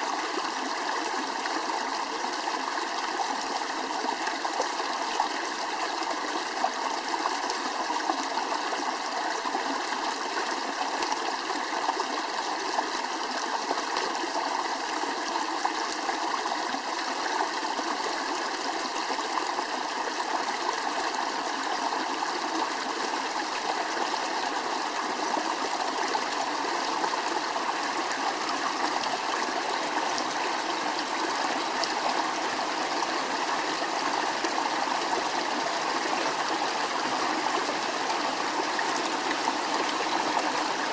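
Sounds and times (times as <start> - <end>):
water rushing: 27.6 - 40.9.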